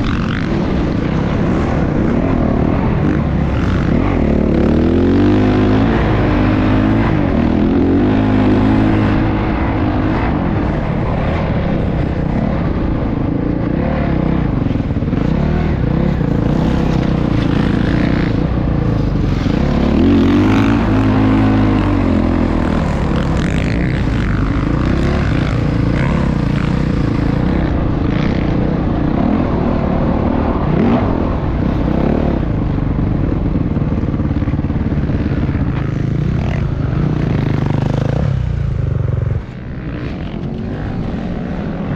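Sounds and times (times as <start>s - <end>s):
motorbike engine revving: 0.0s - 41.9s.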